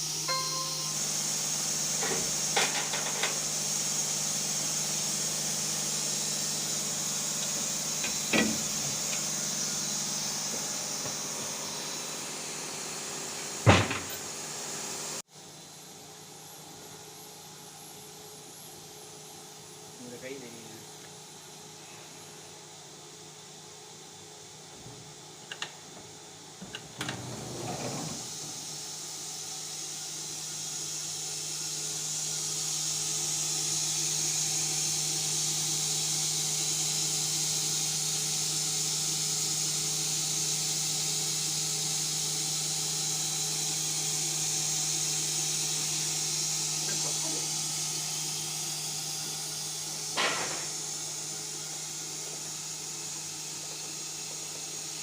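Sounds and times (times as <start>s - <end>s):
machinery hum: 0.0s - 14.5s.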